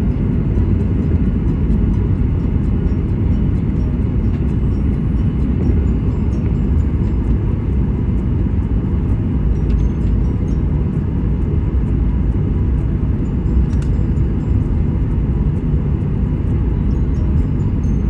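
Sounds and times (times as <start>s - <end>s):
jet engine cabin rumble: 0.0s - 18.0s
faint high ticks: 11.9s - 15.7s.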